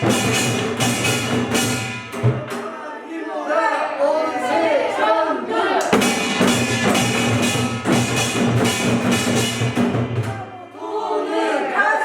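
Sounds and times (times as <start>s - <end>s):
drums and gong percussion ensemble: 0.0s - 2.7s, 5.9s - 10.7s.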